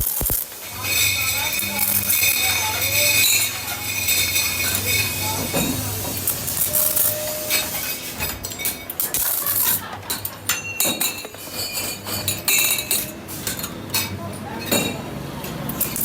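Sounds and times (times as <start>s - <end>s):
high-pitched machine whine: 0.0s - 8.2s.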